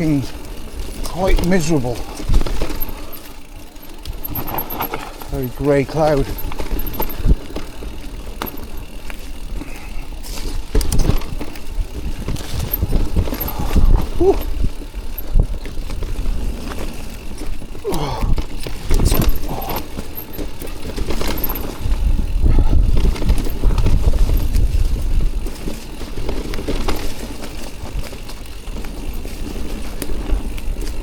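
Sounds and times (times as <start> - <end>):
mountain bike rattling: 0.0 - 31.0
knocks and clicks from bike frame: 3.8 - 5.3, 6.3 - 9.0, 10.6 - 16.0, 17.8 - 24.7
wind rumble on microphone: 10.6 - 16.5, 21.6 - 26.4.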